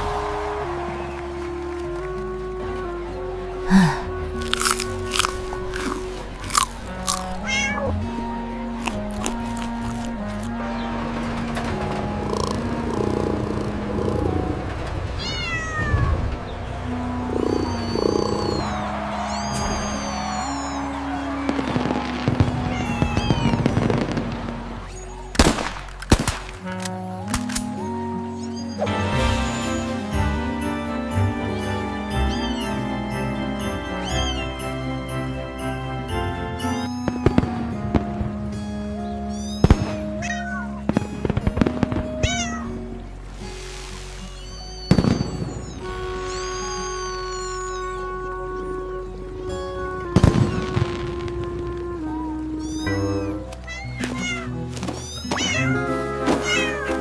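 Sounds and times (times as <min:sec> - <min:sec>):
background music with held notes: 0:00.0 - 0:57.0
sharp crack: 0:04.4 - 0:07.5, 0:22.4 - 0:27.8
cat meowing: 0:07.1 - 0:08.4, 0:15.2 - 0:16.5, 0:17.3 - 0:21.3, 0:22.6 - 0:23.7, 0:24.8 - 0:25.4, 0:28.4 - 0:29.0, 0:32.2 - 0:32.8, 0:34.0 - 0:34.6, 0:36.7 - 0:37.3, 0:39.2 - 0:40.8, 0:42.2 - 0:42.9, 0:44.3 - 0:48.8, 0:52.1 - 0:57.0
crackling clicks: 0:25.4 - 0:27.8.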